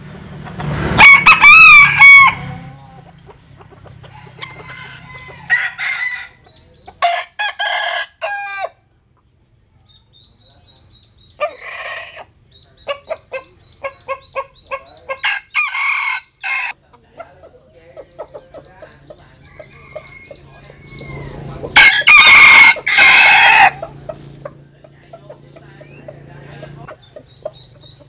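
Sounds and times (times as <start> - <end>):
roosters crowing: 0.2 - 9.1, 11.2 - 16.9, 18.2 - 28.0
chicken clucks: 2.5 - 7.4, 9.0 - 15.6, 16.7 - 21.8, 23.6 - 28.0.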